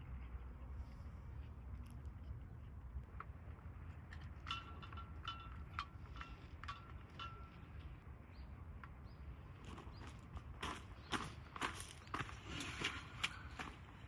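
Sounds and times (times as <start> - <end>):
light metallic clinks: 4.2 - 7.8.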